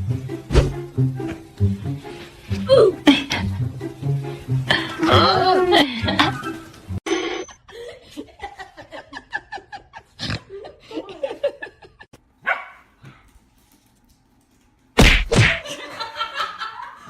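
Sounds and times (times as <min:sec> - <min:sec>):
dog barking and yipping: 0:12.4 - 0:12.9.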